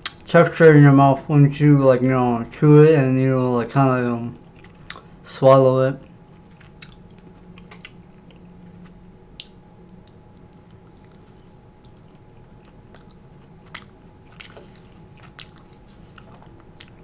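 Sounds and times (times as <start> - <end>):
faint steady hum: 0.0 - 17.0
person chewing crunchy food: 4.4 - 5.2, 6.0 - 17.0.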